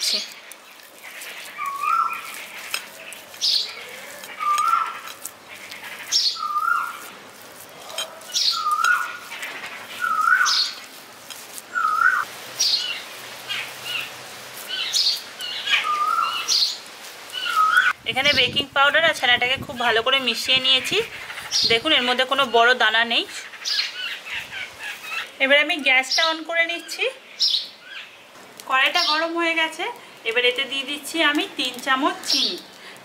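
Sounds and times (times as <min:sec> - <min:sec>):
high bird chirps: 0:01.6 - 0:02.4, 0:03.0 - 0:05.1, 0:05.9 - 0:07.1, 0:08.3 - 0:10.8, 0:11.7 - 0:14.1, 0:14.7 - 0:18.5
bird whistled call: 0:04.4 - 0:04.9, 0:06.3 - 0:06.9, 0:08.4 - 0:09.1, 0:10.0 - 0:10.8, 0:11.8 - 0:12.9, 0:15.7 - 0:16.7, 0:17.4 - 0:18.0.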